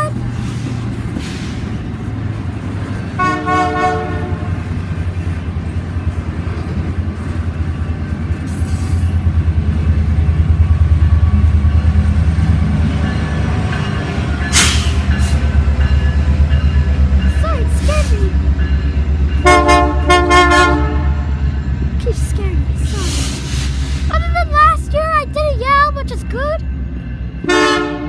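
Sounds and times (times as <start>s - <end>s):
train rumbling by: 0.0s - 28.0s
diesel locomotive horn blast: 3.2s - 4.7s, 19.4s - 21.4s, 27.4s - 28.0s.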